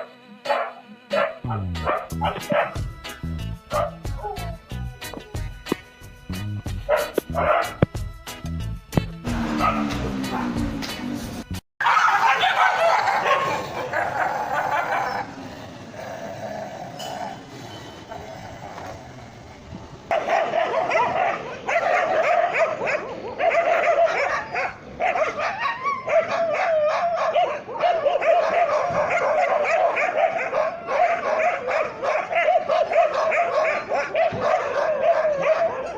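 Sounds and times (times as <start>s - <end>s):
dogs barking and yelping: 0.0s - 2.8s, 3.7s - 5.5s, 6.7s - 7.9s, 9.4s - 11.0s, 11.8s - 18.2s, 20.1s - 35.9s.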